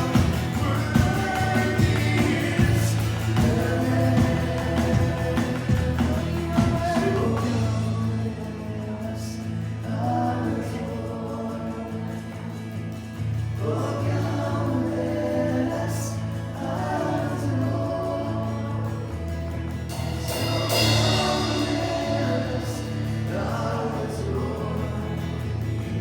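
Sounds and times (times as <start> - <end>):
group singing worship song: 0.0 - 26.0
sustained chords: 20.0 - 24.0.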